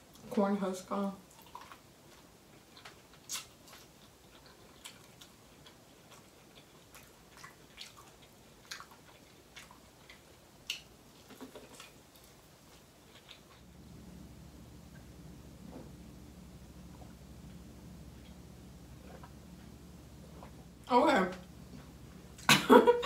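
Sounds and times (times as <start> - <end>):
corn on the cob being chewed: 1.3 - 13.7.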